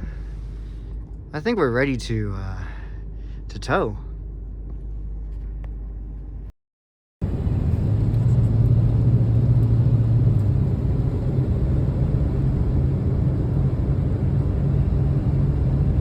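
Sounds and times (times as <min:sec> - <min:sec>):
pickup truck driving: 0:07.2 - 0:16.0.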